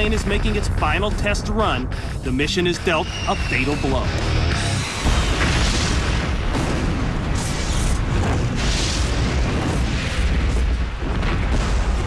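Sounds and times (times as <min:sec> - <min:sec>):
explosion and fire rumble: 0:00.0 - 0:12.0.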